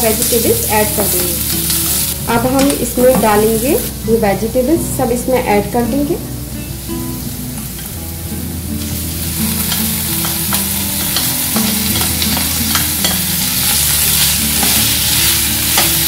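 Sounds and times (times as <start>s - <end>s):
vegetables sizzling in hot oil: 0.0s - 16.0s
spatula scraping and tapping: 9.6s - 13.3s.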